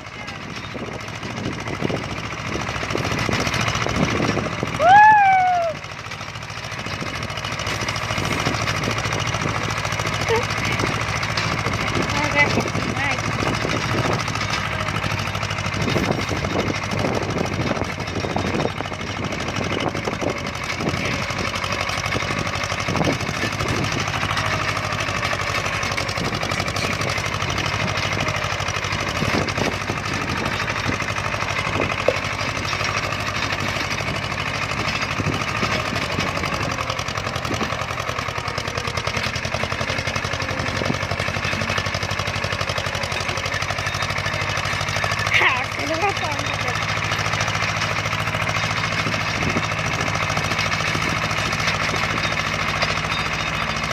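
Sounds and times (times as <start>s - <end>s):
tractor engine running: 0.0s - 53.9s
short knocks and rattles: 6.6s - 53.9s.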